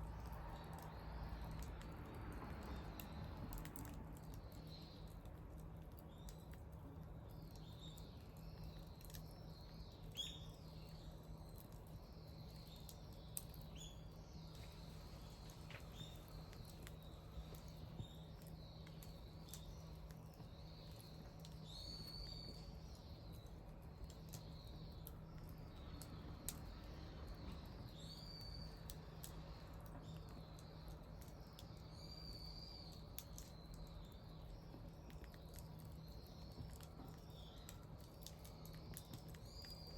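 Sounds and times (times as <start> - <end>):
bonfire crackling and popping: 0.0 - 39.9
small birds chirping: 0.0 - 39.9.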